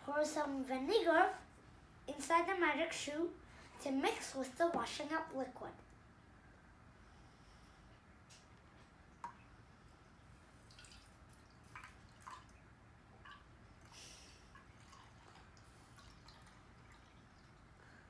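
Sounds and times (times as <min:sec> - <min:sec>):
liquid dripping and splashing: 0:10.5 - 0:17.8.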